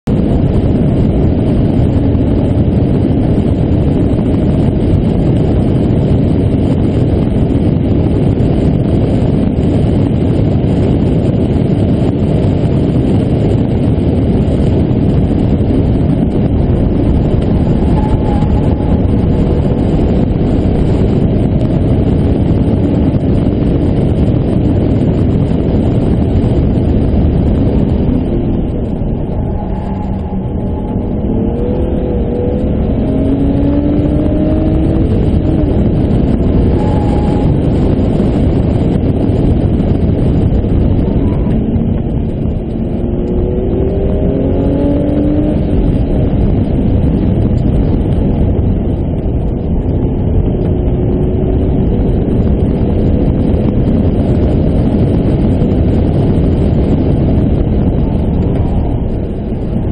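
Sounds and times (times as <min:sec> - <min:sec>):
car engine running hard: 0:00.0 - 0:59.9
wind and road noise: 0:00.0 - 0:59.9.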